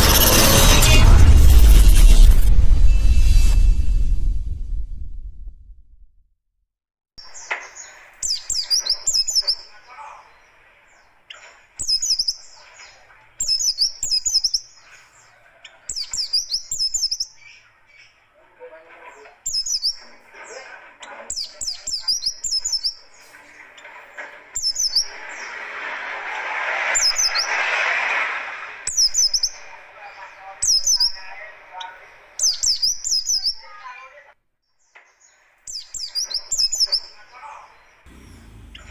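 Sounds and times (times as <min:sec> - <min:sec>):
rushing noise: 0:00.0 - 0:05.8, 0:24.4 - 0:30.3, 0:38.1 - 0:38.9
bird singing in harsh chirps: 0:07.2 - 0:18.2, 0:19.1 - 0:25.6, 0:28.9 - 0:33.8, 0:34.8 - 0:38.9.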